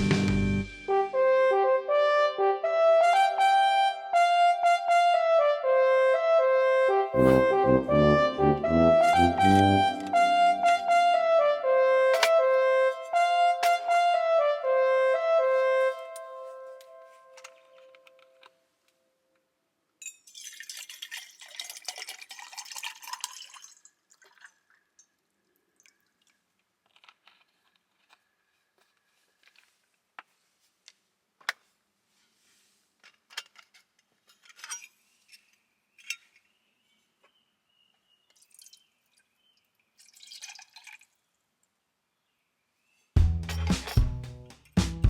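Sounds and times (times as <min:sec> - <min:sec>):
liquid pouring: 0:20.2 - 0:26.4, 0:40.0 - 0:41.2.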